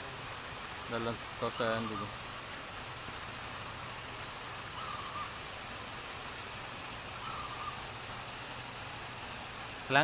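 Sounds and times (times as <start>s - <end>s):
crow cawing: 4.7s - 5.4s, 7.2s - 7.9s.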